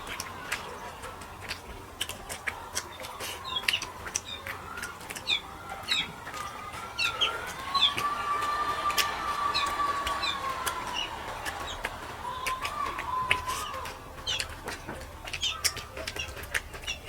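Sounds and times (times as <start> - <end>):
small birds chirping: 0.0 - 17.0
wet chewing mouth smacks: 0.0 - 17.0.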